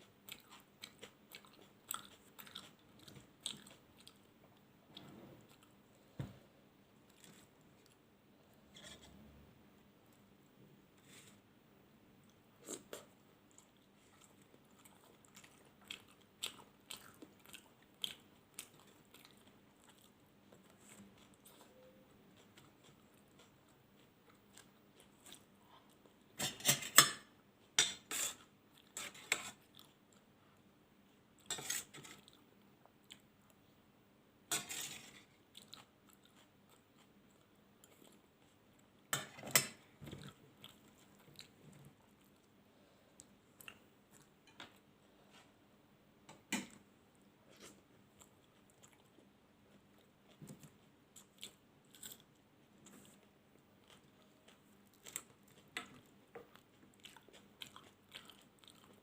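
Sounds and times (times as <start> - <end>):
chewing and biting: 0.2 - 4.3, 12.6 - 26.2, 47.6 - 59.0.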